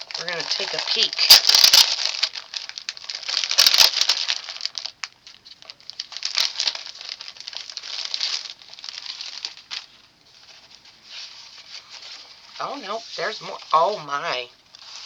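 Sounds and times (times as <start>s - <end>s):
packaging crinkling: 0.0s - 12.5s
small clicks: 3.6s - 3.9s.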